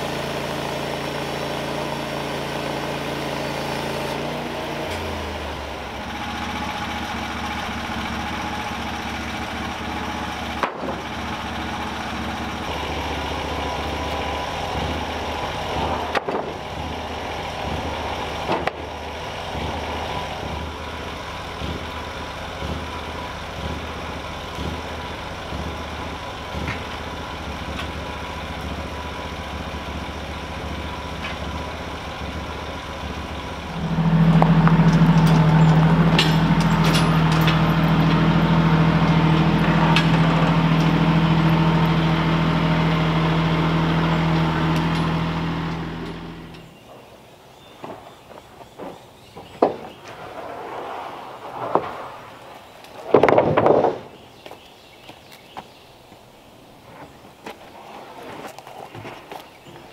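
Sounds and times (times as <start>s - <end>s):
engine running at low speed: 0.0s - 59.9s
sharp engine knocks: 10.5s - 11.2s, 15.8s - 16.9s, 18.4s - 19.8s, 33.7s - 41.5s, 47.8s - 50.2s, 53.1s - 54.6s.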